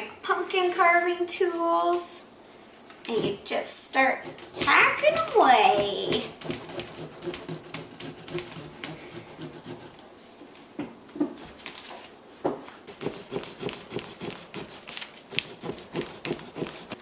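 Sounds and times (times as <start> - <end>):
carving tool sawing through pumpkin: 3.2 - 10.0, 11.4 - 11.6, 12.8 - 17.0.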